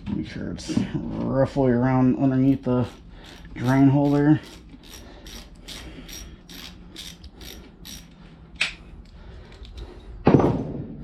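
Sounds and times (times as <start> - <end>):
socket ratchet clicking: 2.5 - 8.8.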